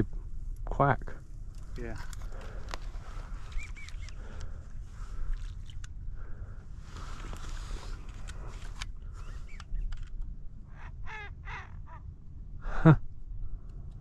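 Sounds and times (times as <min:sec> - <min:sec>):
duck raspy quacking calls: 0:10.7 - 0:12.0.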